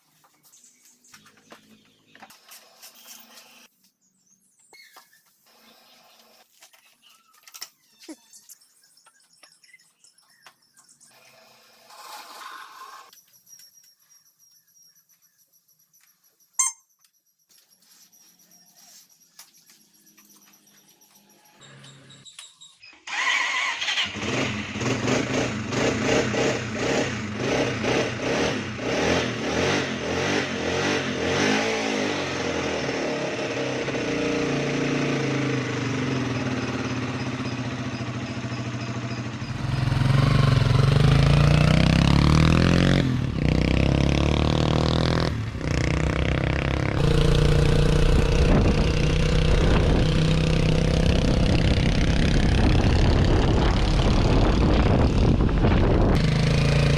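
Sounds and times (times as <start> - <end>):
motorcycle engine revving: 23.1 - 56.9
motorcycle engine running: 24.1 - 56.9.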